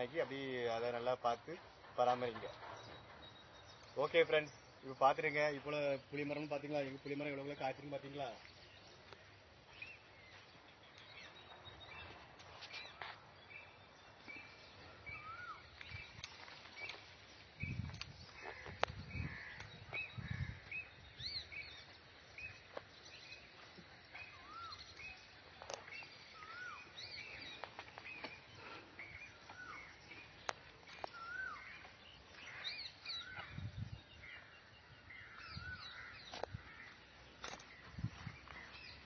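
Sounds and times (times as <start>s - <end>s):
birds chirping and whistling: 9.8s - 36.5s.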